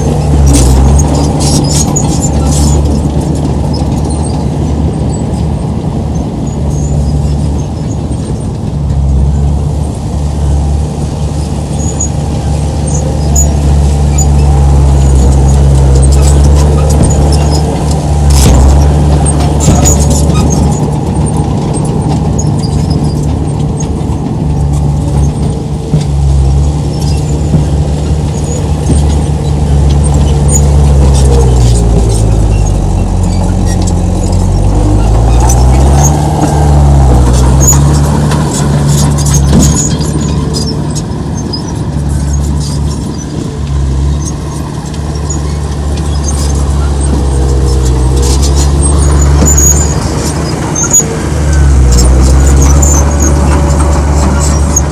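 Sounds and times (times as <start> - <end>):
diesel engine under load: 0.0 - 54.9
metallic squeaks and clinks: 0.4 - 3.1, 28.1 - 54.9.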